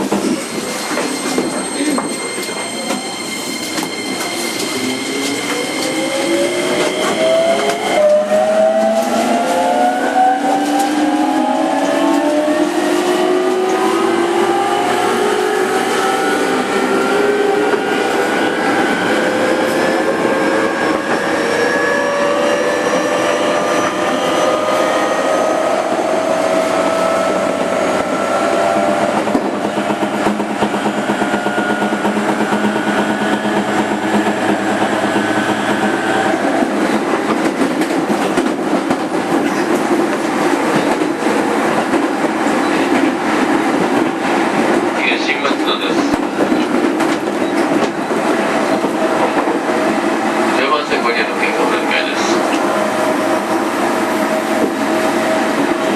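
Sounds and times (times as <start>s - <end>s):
clickety-clack of rail joints: 0.0s - 6.0s, 10.4s - 12.4s, 29.1s - 35.6s, 36.5s - 52.8s, 54.3s - 55.9s
train wheels rumbling on rails: 0.0s - 55.9s.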